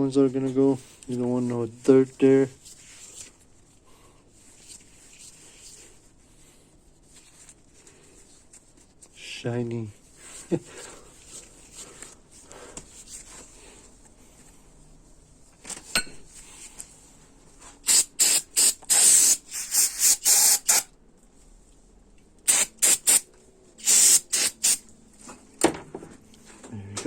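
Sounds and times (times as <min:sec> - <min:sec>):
spraying hiss bursts: 0:17.8 - 0:20.9, 0:22.5 - 0:24.8.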